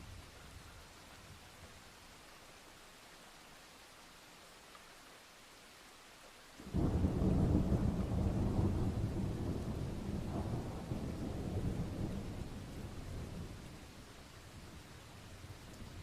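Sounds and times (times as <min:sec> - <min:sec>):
steady rain: 0:00.0 - 0:16.0
thunder rumble: 0:06.7 - 0:13.9.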